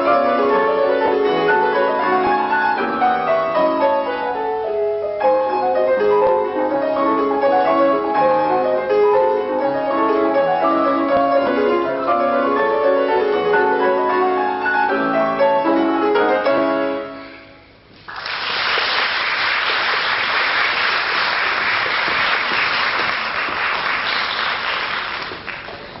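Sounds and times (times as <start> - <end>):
piano waltz chords: 0.0 - 17.9
audience applause: 18.1 - 26.0.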